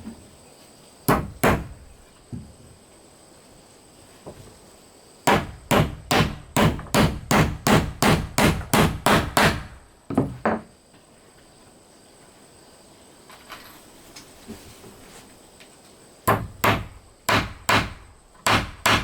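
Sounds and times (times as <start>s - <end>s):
hammer striking wood: 1.1s - 1.8s, 5.3s - 10.6s, 16.3s - 19.0s.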